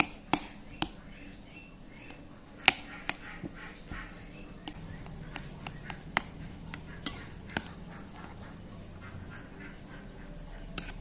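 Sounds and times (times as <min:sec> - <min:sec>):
utensil clicks and taps: 0:02.0 - 0:08.6, 0:09.9 - 0:11.0.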